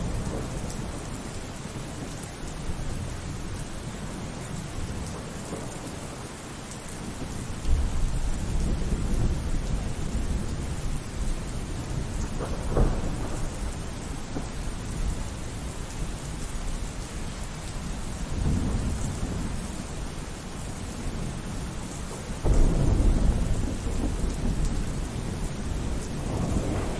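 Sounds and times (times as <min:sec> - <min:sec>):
rumbling thunder: 0:00.0 - 0:02.1, 0:07.0 - 0:26.9
steady rainfall: 0:00.0 - 0:26.9
sharp thunder clap: 0:12.4 - 0:14.7, 0:22.4 - 0:26.9.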